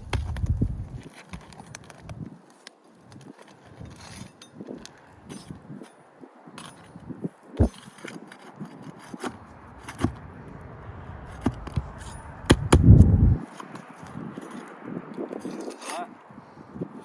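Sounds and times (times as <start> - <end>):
loud low rumble: 9.4 - 13.4.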